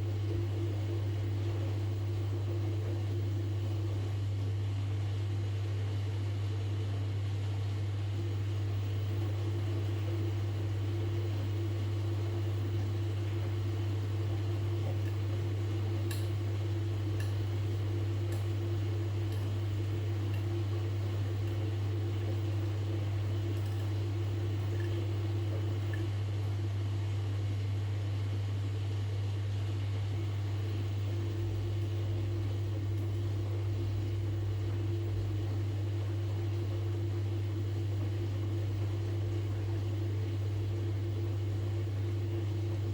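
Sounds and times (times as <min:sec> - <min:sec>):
washing machine humming: 0:00.0 - 0:42.9.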